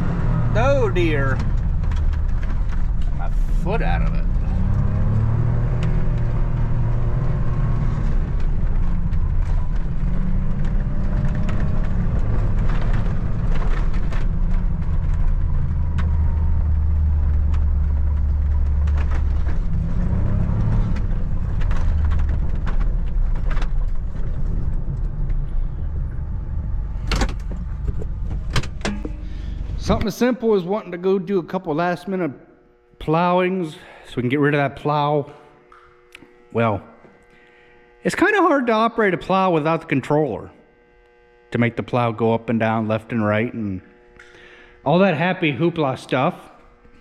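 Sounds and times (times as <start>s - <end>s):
knocks and rattles: 0.0s - 6.6s, 8.3s - 30.0s
vehicle engine running: 0.0s - 32.0s.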